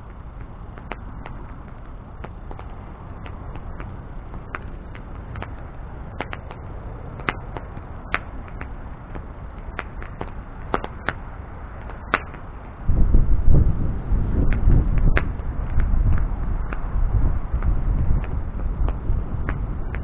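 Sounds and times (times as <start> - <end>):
bonfire crackling and popping: 0.0 - 20.0
loud low rumble: 12.8 - 20.0.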